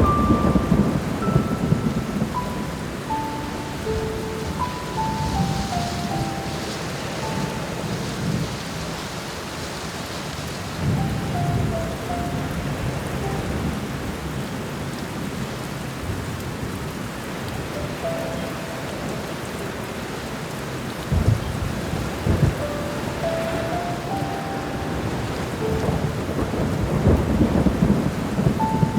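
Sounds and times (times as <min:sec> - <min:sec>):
soft piano notes: 0:00.0 - 0:09.0, 0:10.8 - 0:15.0, 0:17.5 - 0:28.9
low rolling thunder: 0:00.0 - 0:15.3, 0:21.1 - 0:28.9
heavy rain: 0:00.0 - 0:28.9.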